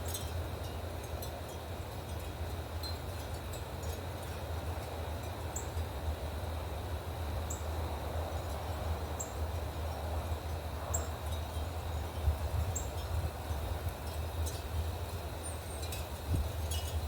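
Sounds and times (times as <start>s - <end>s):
low rumble of wind or traffic: 0.0s - 17.0s.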